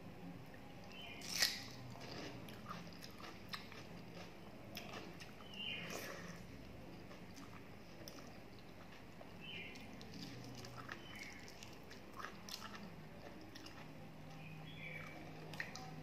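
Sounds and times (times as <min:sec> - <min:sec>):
person chewing wet food: 0:00.8 - 0:16.0.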